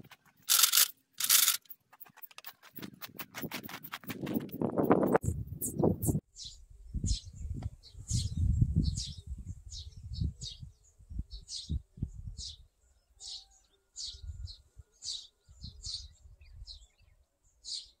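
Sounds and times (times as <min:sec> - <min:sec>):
small bird chirping: 0:04.8 - 0:18.0.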